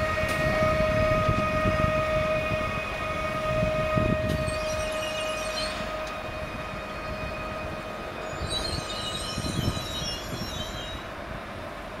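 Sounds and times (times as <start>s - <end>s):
train rumble and whine: 0.0s - 12.0s
brake squeal: 4.4s - 6.2s, 6.8s - 11.1s.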